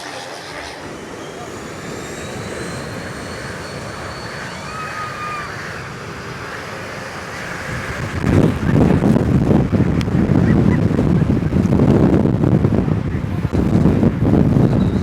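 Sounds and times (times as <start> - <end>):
airliner engines roaring overhead: 0.0 - 15.0.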